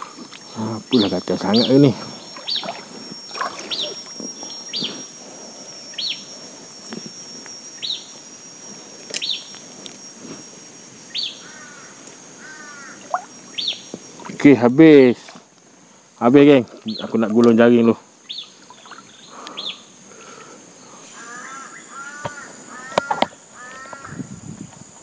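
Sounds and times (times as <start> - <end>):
insect drone: 0.0 - 25.0
bird calling sharply: 11.1 - 13.9, 21.1 - 24.2.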